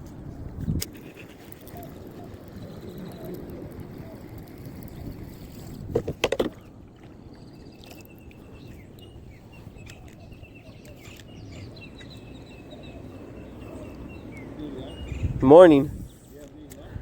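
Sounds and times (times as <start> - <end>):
water rumbling around kayak: 0.0 - 16.1
faint bird chirps: 1.0 - 5.2, 7.2 - 16.4.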